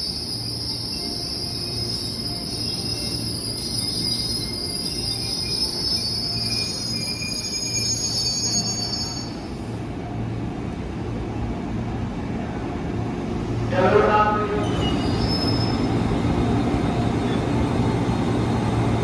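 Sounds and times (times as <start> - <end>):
train brakes squealing: 0.0 - 9.8, 14.5 - 16.1
train rumble and hum: 0.0 - 19.0.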